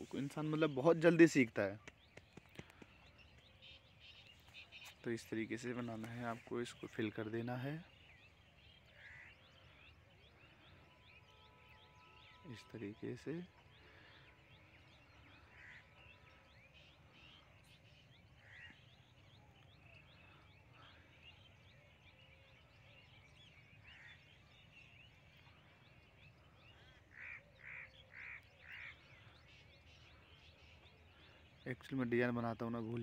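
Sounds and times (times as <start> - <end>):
faint bird chirping: 0.0 - 33.0
short bird calls: 7.8 - 31.6.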